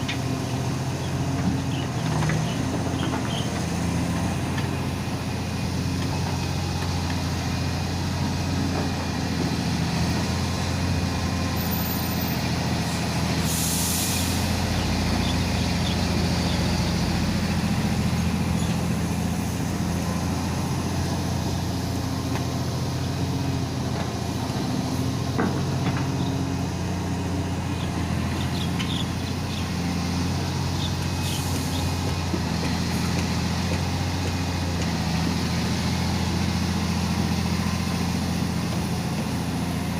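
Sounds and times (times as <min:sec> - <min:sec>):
excavator diesel engine running: 0:00.0 - 0:39.9
hydraulic hiss: 0:13.4 - 0:14.6.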